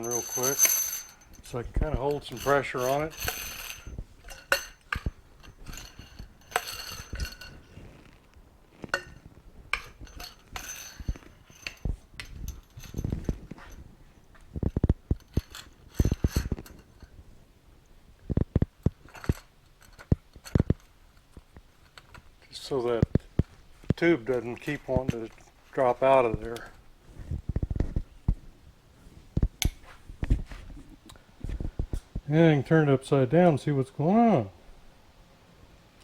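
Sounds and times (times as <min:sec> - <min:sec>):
metal clinks and knocks: 0:00.0 - 0:17.2, 0:18.1 - 0:28.4.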